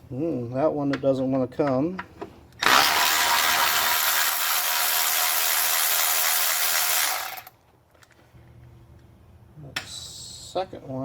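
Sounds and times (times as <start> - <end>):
cordless ratchet running: 2.6 - 7.5.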